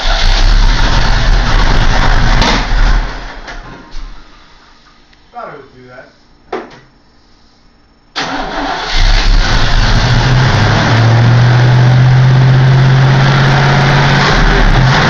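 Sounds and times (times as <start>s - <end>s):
engine running loud: 0.0s - 3.1s, 8.9s - 15.0s
car engine cranking and starting: 0.0s - 3.7s, 8.2s - 15.0s.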